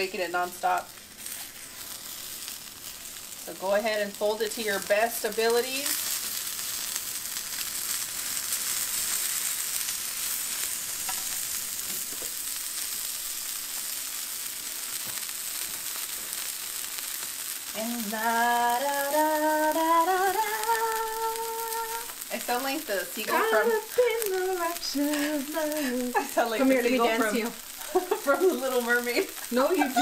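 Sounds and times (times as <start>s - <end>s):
taco sizzling on a griddle: 0.0s - 30.0s
person singing long notes: 17.8s - 22.1s, 23.3s - 26.2s.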